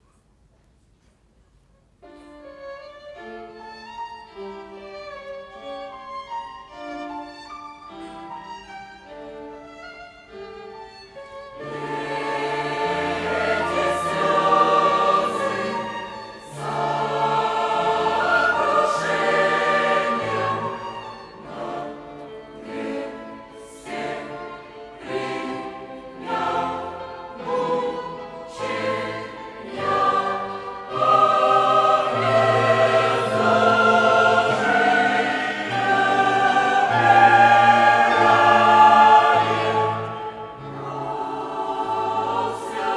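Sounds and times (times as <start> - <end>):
violins playing sustained chords: 2.4 - 42.9
choir singing a hymn: 10.7 - 42.9.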